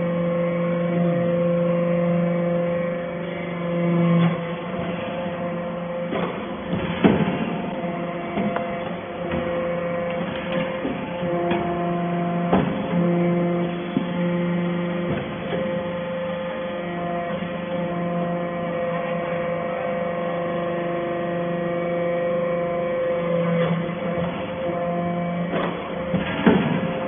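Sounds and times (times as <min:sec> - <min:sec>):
baler electric hum: 0:00.0 - 0:27.0.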